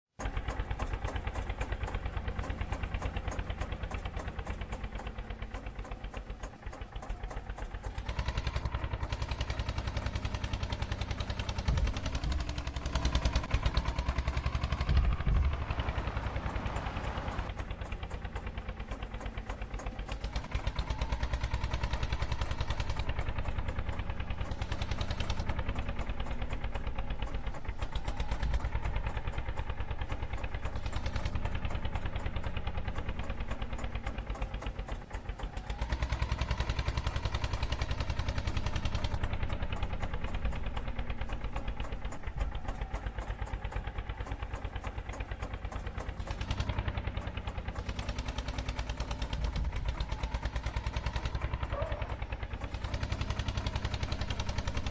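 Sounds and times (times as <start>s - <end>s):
tractor diesel engine running: 0.1s - 54.9s.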